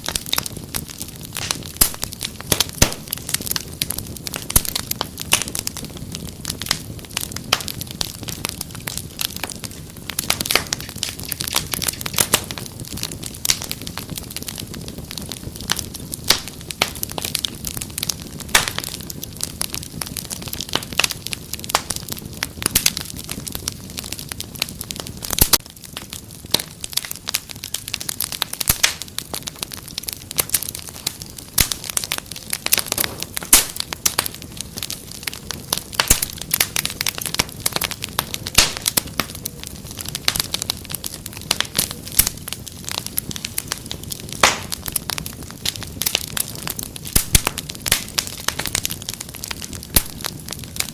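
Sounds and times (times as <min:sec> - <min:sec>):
low rumble of flame: 0:00.0 - 0:50.9
wood fire crackling: 0:00.0 - 0:50.9
sharp pops and snaps: 0:01.4 - 0:03.6, 0:08.9 - 0:12.7, 0:18.5 - 0:19.0, 0:25.3 - 0:25.7, 0:26.6 - 0:40.6, 0:41.5 - 0:50.9.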